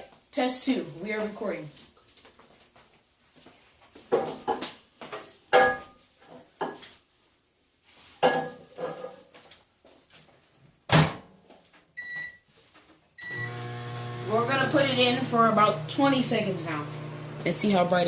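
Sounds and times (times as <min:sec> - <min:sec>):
kitchenware knocking and clinking: 0:04.1 - 0:06.9, 0:08.2 - 0:09.3.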